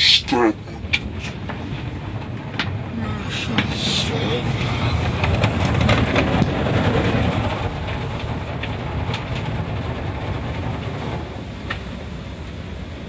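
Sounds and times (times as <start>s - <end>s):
car wash rumbling: 0.0s - 13.0s.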